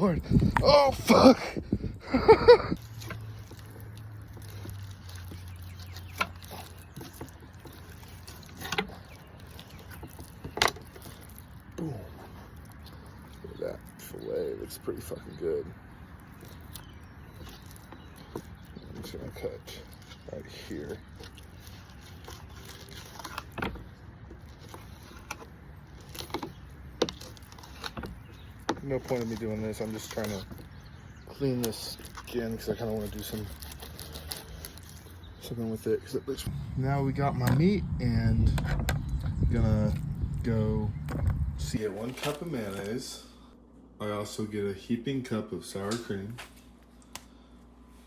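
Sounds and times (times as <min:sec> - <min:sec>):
low steady hum: 0:36.3 - 0:48.0.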